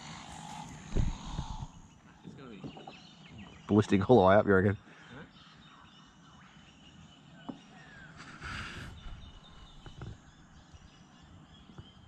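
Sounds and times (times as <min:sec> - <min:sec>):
short rushing hiss: 0:08.2 - 0:09.4.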